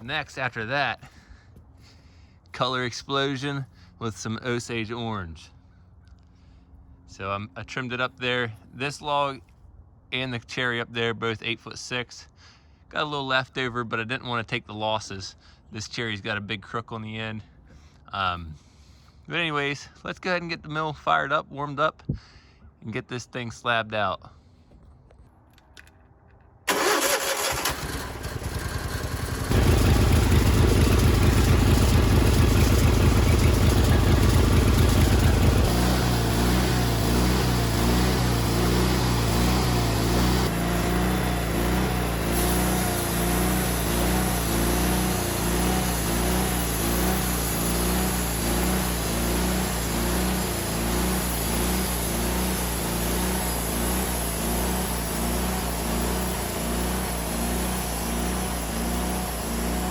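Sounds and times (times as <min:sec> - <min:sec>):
engine running and idling: 0:26.7 - 0:59.9
engine starter cranking: 0:26.7 - 0:59.9.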